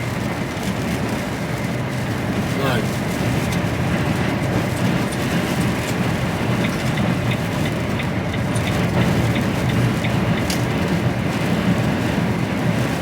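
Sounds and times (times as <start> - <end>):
lorry engine and road drone: 0.0 - 13.0
light regular ticking: 3.5 - 10.9.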